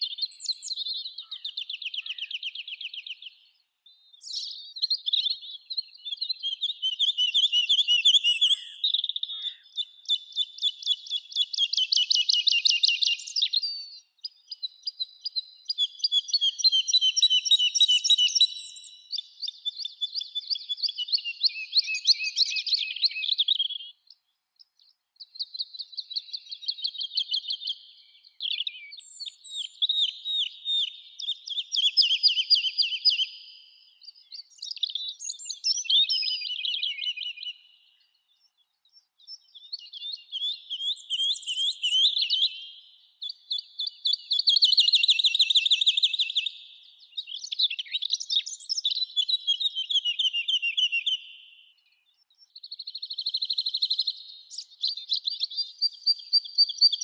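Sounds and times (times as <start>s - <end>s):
songbirds trilling: 0.0s - 24.1s.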